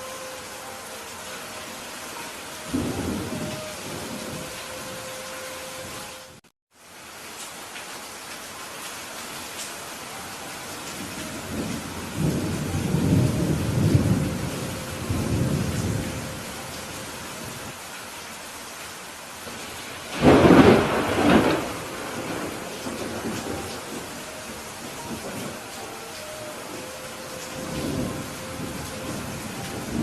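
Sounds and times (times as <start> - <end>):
steady rain falling: 0.0 - 30.0
rolling thunder rumble: 2.7 - 4.8, 11.0 - 16.6, 20.1 - 25.7, 26.7 - 30.0
sharp thunderclap: 20.1 - 24.0.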